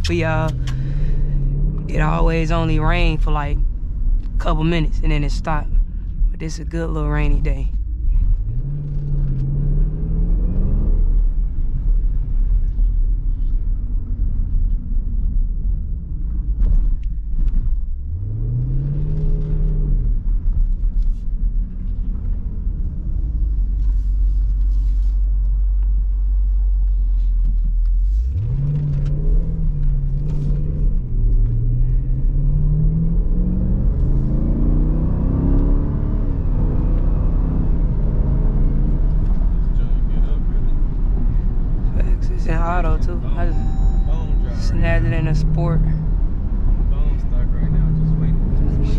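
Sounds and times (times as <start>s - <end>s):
car engine revving and accelerating: 8.0s - 14.8s, 16.6s - 25.1s, 27.9s - 48.9s.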